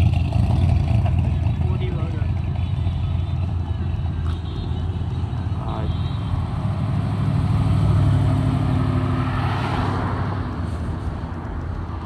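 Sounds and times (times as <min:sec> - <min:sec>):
car engine rumbling: 0:00.0 - 0:12.0
rush of passing car: 0:06.7 - 0:11.9.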